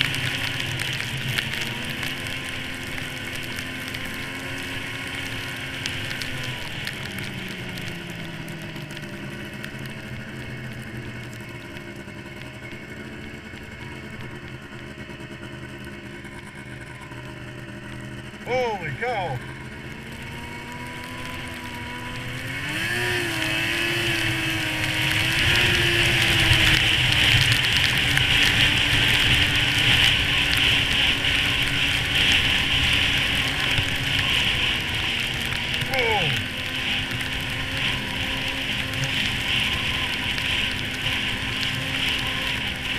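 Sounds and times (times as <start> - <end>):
wind and blowing snow: 0.0 - 18.4, 19.5 - 42.9
snowmobile engine running: 0.0 - 42.9.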